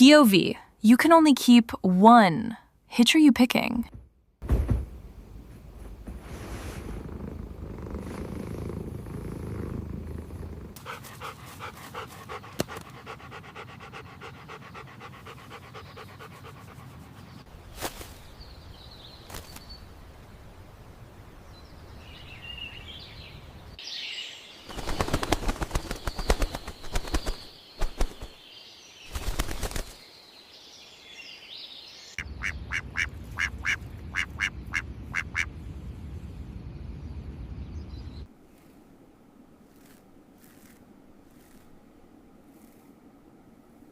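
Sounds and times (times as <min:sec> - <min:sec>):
animal panting: 0:06.7 - 0:17.5.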